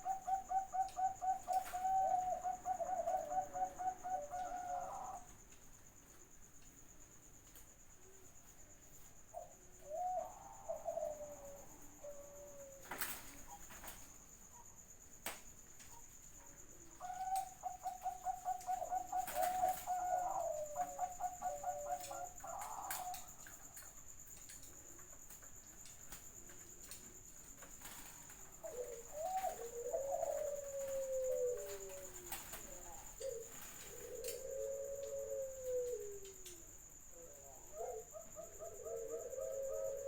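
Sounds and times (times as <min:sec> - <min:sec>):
dove cooing: 0:00.0 - 0:05.4, 0:09.3 - 0:14.7, 0:16.0 - 0:23.8, 0:27.8 - 0:40.0.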